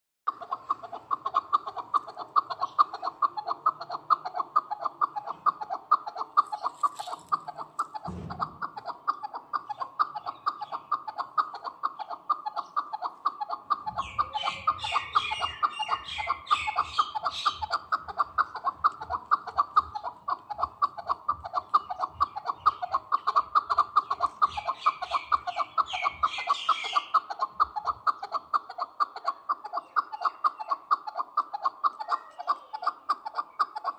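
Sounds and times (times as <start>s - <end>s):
partridge cackling call: 0.3s - 33.9s
high bird chirping: 13.9s - 28.2s.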